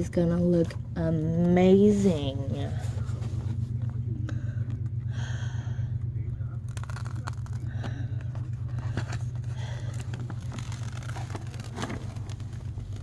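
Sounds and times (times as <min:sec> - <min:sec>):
steady low hum: 0:00.0 - 0:13.0
plastic film crinkling: 0:06.7 - 0:07.6, 0:09.3 - 0:13.0.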